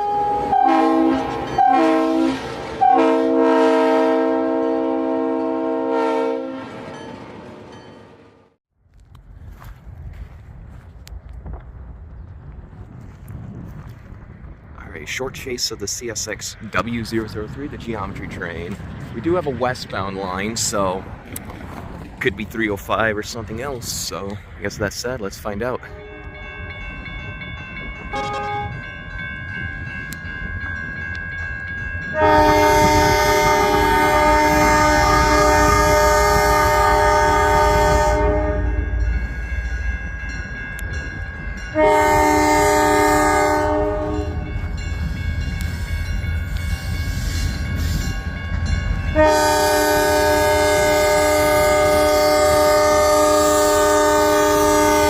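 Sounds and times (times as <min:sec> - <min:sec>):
locomotive air horn: 0:00.0 - 0:06.8, 0:28.1 - 0:28.8, 0:32.1 - 0:39.0, 0:41.7 - 0:44.5, 0:49.1 - 0:55.0
train rumbling: 0:00.0 - 0:55.0.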